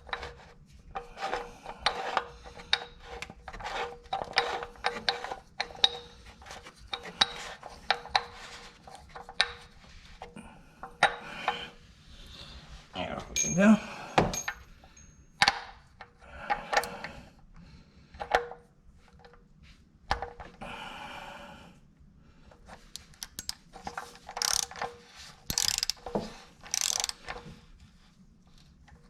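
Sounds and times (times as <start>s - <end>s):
metal tools clinking: 13.3s - 15.3s
ratchet wrench clicking: 23.0s - 23.6s, 24.3s - 27.4s.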